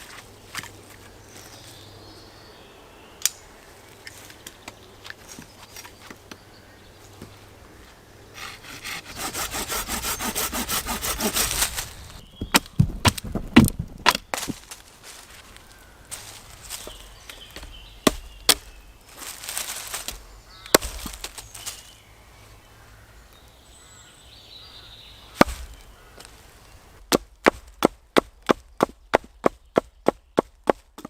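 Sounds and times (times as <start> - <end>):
hand saw cutting wood: 8.3 - 12.2
wooden knocks and cracks: 11.0 - 14.9, 16.1 - 21.8.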